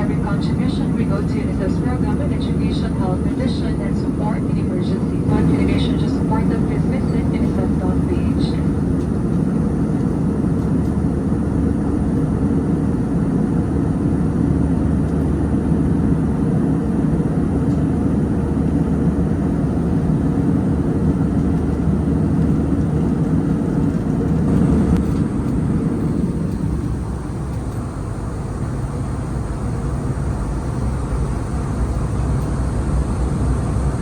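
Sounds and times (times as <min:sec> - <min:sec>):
airliner cabin noise: 0:00.0 - 0:34.0.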